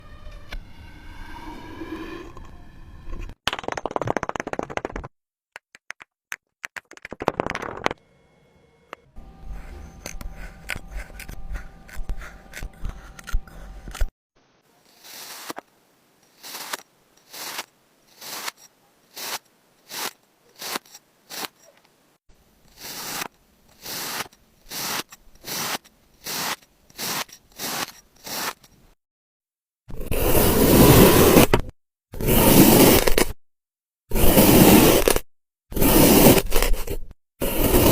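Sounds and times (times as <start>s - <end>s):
short scraping strokes: 9.2s - 14.1s
kinetic sand scraping and crunching: 16.3s - 21.7s, 22.7s - 28.7s, 34.1s - 37.9s.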